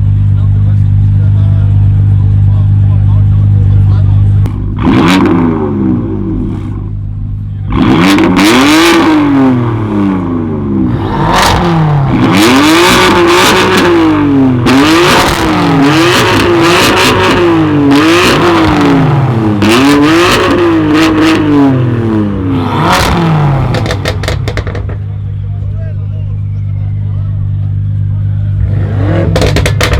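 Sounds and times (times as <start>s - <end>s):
car engine revving hard: 4.5s - 7.0s, 7.7s - 25.1s, 28.5s - 29.9s.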